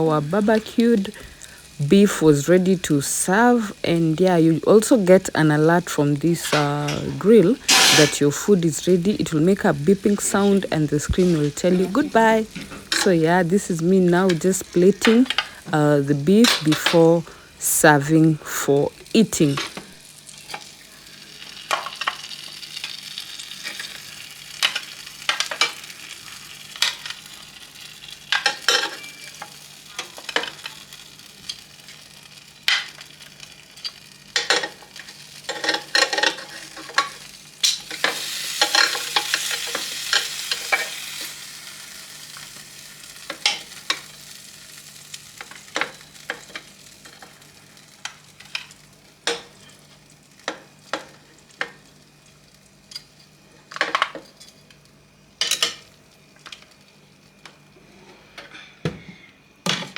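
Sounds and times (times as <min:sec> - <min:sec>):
sizzling hiss: 0:00.0 - 0:54.1
faint steady hum: 0:00.0 - 0:59.9
utensils scraping a plate: 0:06.9 - 0:08.2.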